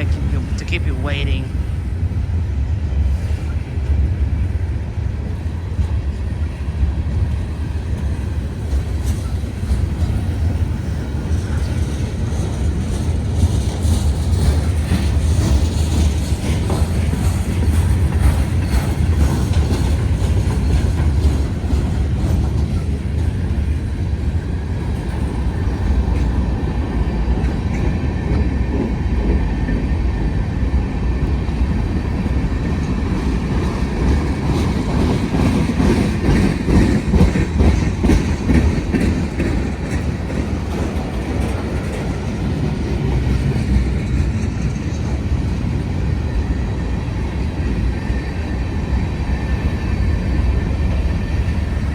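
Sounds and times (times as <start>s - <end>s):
clickety-clack of wheels on rail joints: 0.0s - 51.9s
freight train cars rolling past: 0.0s - 51.9s.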